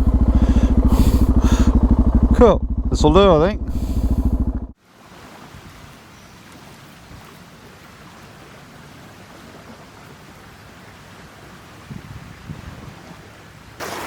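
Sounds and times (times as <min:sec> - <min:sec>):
river water wash: 0:03.0 - 0:14.0.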